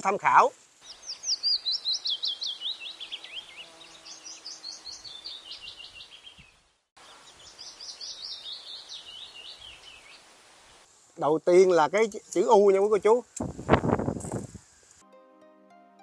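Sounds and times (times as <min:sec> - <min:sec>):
bird chirping: 0:00.8 - 0:10.3.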